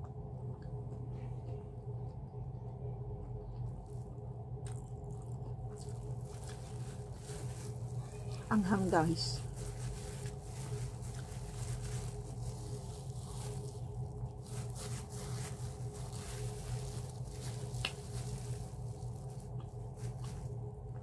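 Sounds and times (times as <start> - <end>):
steady low hum: 0.0 - 21.0
person chewing: 3.3 - 8.4.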